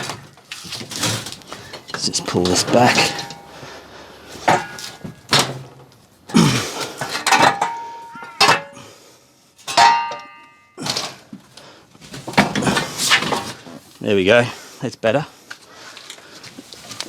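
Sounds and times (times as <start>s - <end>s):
metal panel knocking and clattering: 2.4s - 3.5s, 4.4s - 5.8s, 7.0s - 8.8s.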